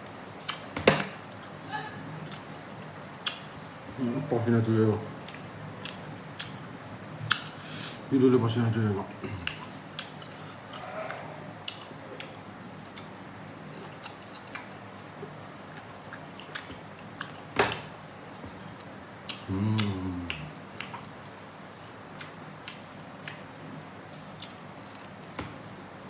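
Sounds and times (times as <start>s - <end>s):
chewing and biting: 5.2s - 6.7s, 9.4s - 26.0s
mouth clicks and smacks: 7.2s - 7.5s, 19.2s - 21.2s, 21.8s - 23.5s.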